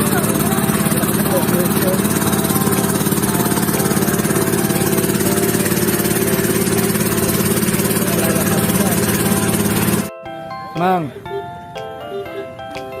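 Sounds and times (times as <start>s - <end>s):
motor boat engine running: 0.0s - 10.1s.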